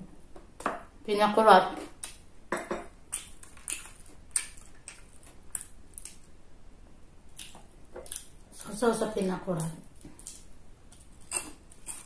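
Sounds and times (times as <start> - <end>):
person chewing with wet smacks: 3.0 - 6.4, 7.3 - 8.6.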